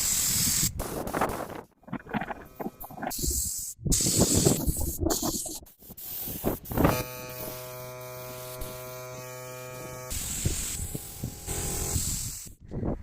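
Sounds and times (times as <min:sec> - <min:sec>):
electric motor buzz: 0:06.6 - 0:12.6.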